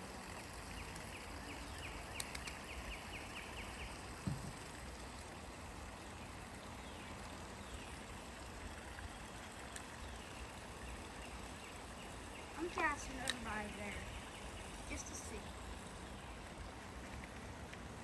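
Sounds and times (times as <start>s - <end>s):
flowing creek water: 0.0s - 18.0s
light clicks: 2.2s - 2.6s, 13.2s - 13.5s
soft knock: 4.2s - 4.6s.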